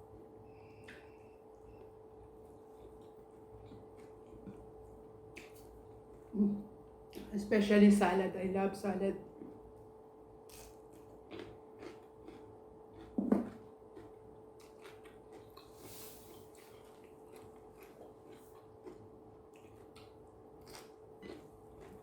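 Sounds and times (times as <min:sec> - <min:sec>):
faint steady hum: 0:00.0 - 0:22.0
person chewing food: 0:00.6 - 0:06.3, 0:10.5 - 0:22.0.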